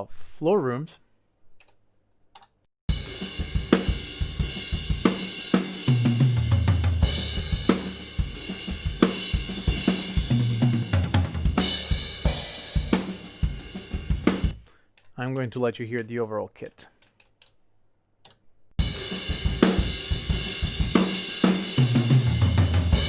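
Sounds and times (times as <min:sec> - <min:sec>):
drum kit playing a groove: 0:02.9 - 0:14.6, 0:18.8 - 0:23.0.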